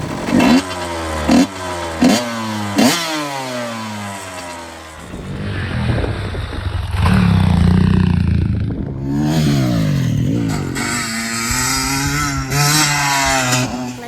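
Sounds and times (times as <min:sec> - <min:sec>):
dirt bike engine blipping: 0:00.0 - 0:14.0.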